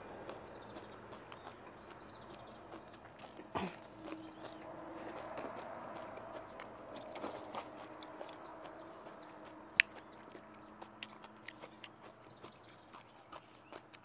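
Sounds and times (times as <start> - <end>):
person chewing: 0.0 - 14.0
wet mouth clicks: 9.7 - 14.0.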